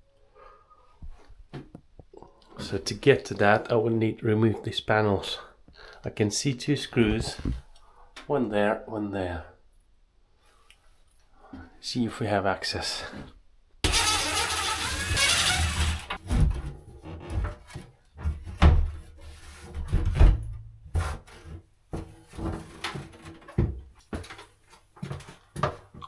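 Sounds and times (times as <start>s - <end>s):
knocks and clatters: 13.8s - 16.5s
panel scraping: 13.8s - 16.5s.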